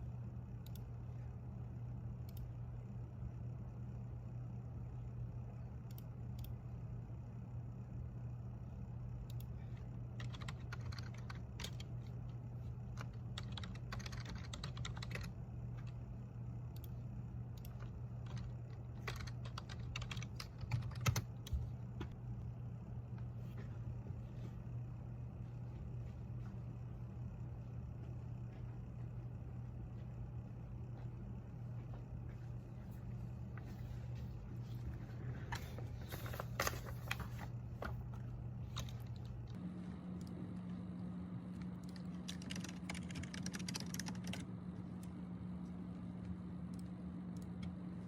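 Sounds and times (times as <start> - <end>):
steady low hum: 0.0 - 48.0
computer keyboard typing: 9.3 - 12.1, 12.8 - 16.0, 16.7 - 21.5, 41.6 - 44.5.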